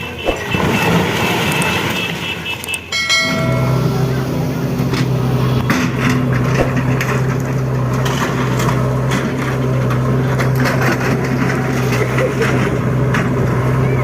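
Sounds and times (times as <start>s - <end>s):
bulldozer engine running: 0.0s - 14.0s
wood and masonry cracking: 4.9s - 13.8s.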